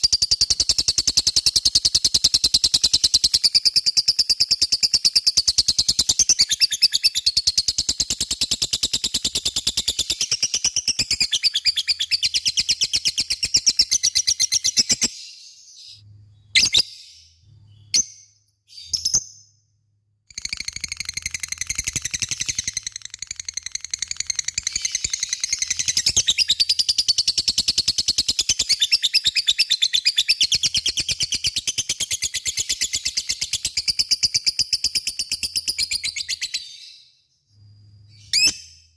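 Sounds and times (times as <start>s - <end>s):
short bird chirps: 9.0s - 19.7s, 35.3s - 38.9s.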